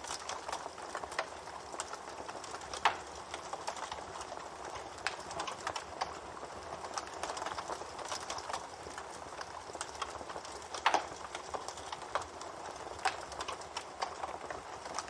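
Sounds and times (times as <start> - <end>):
wood fire crackling: 0.0 - 15.0
sharp pops of fire: 9.8 - 14.3.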